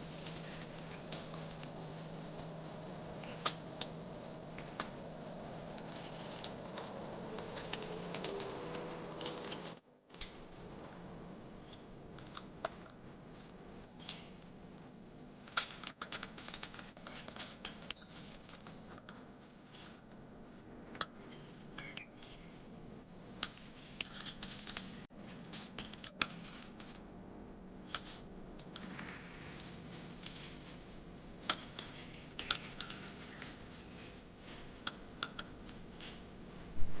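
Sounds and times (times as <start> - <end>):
small clicks of hand work: 5.7 - 10.4, 11.6 - 14.9, 15.5 - 20.2, 20.9 - 22.5, 23.4 - 27.0, 27.9 - 36.3.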